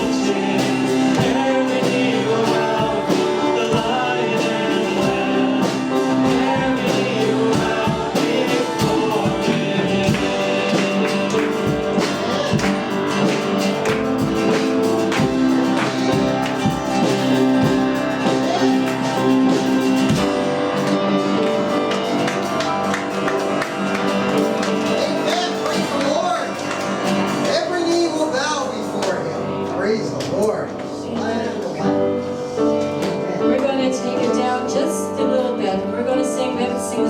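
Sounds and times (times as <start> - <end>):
voices singing: 0.0 - 28.9
strummed guitar: 0.0 - 34.5.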